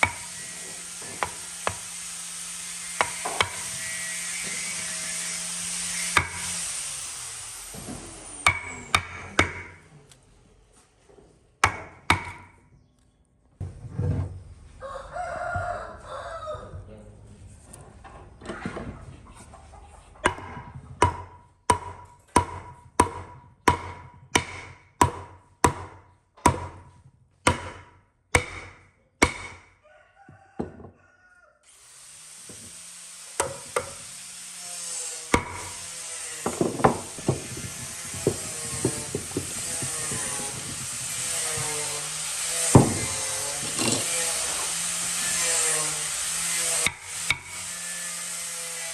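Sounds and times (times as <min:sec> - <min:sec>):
power tool running: 0:00.0 - 0:09.4, 0:31.7 - 0:48.9
rooster crowing: 0:14.8 - 0:16.8, 0:29.8 - 0:31.7.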